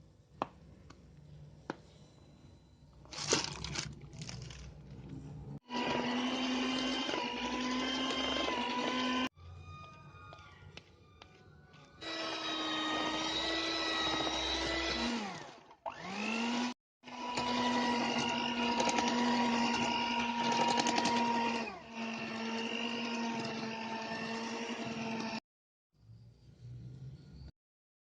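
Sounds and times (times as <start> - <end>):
electric mixer motor whine: 5.6 - 9.4, 11.9 - 25.4.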